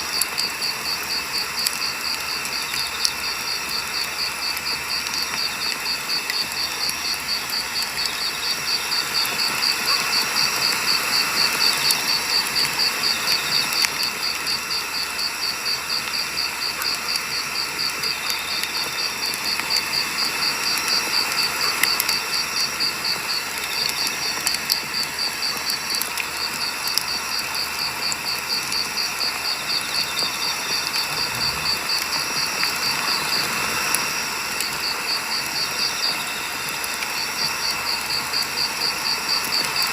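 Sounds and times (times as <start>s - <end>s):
crickets chirping: 0.0s - 39.9s
wood fire crackling: 15.9s - 35.8s.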